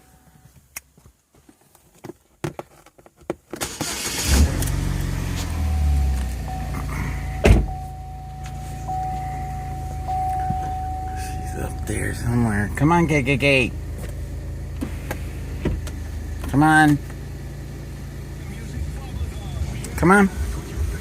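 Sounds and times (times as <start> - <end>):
car engine idling: 3.6 - 21.0
steady high tone: 5.5 - 13.8
sharp thump: 7.4 - 7.8.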